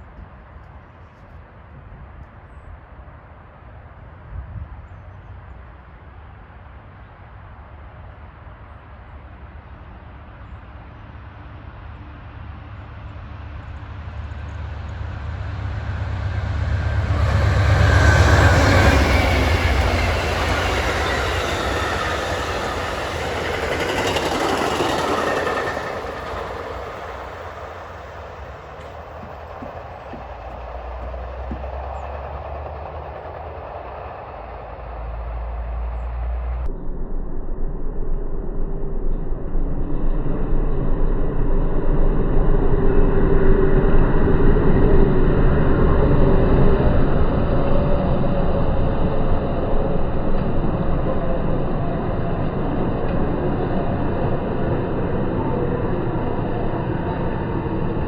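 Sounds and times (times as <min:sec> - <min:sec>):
diesel locomotive engine rumble: 0:00.0 - 0:58.0
train wheels clattering on rails: 0:14.5 - 0:36.7.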